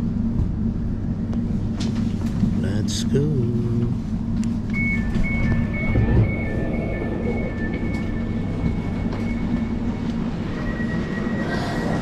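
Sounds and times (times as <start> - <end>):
electric train rumbling: 0.0 - 12.0
high electric whine: 4.7 - 11.6.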